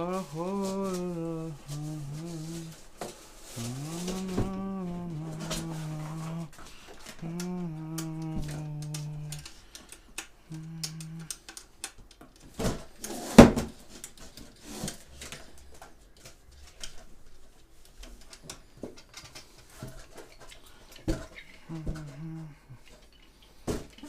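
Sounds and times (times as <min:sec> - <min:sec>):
man humming low notes: 0:00.0 - 0:02.8, 0:03.5 - 0:09.6, 0:10.4 - 0:11.4, 0:21.6 - 0:22.8.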